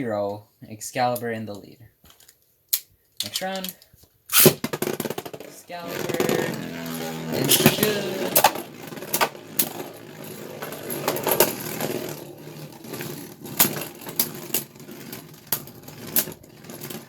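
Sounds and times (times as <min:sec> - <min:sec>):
spinning tops clacking: 0:04.3 - 0:17.0
spinning tops whirring: 0:04.3 - 0:17.0.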